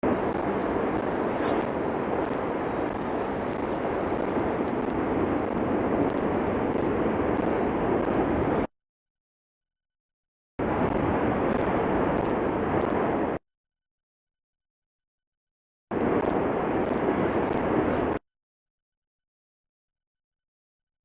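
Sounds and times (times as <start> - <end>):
volcano eruption rushing: 0.0 - 8.7, 10.6 - 13.4, 16.0 - 18.2.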